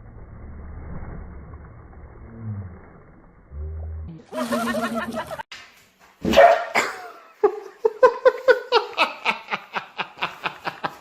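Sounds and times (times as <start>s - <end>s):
high-pitched laughter: 4.2s - 5.4s.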